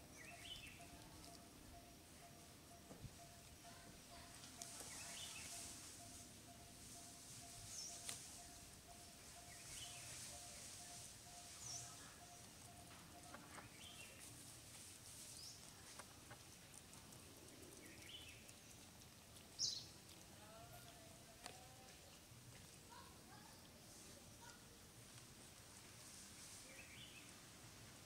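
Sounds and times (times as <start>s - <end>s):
bird chirping: 0.0s - 3.8s, 4.5s - 14.3s, 15.3s - 18.8s, 19.4s - 20.1s
faint pulsing tone: 5.3s - 14.2s.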